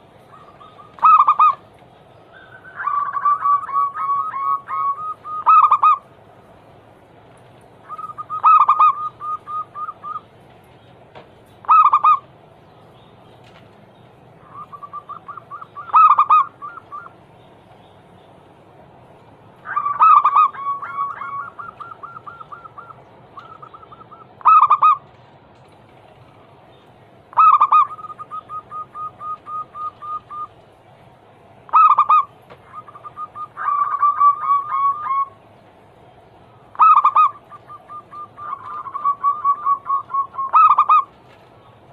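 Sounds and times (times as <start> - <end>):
doves cooing: 0.0 - 6.8, 7.4 - 41.9.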